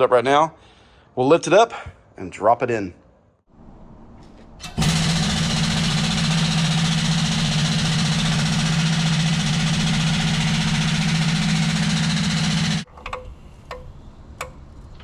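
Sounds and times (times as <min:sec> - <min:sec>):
machine motor humming and rattling: 0:04.4 - 0:12.9.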